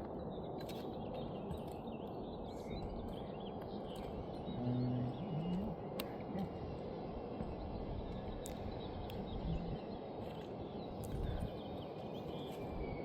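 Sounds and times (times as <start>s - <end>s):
low outdoor rumble: 2.3s - 11.7s.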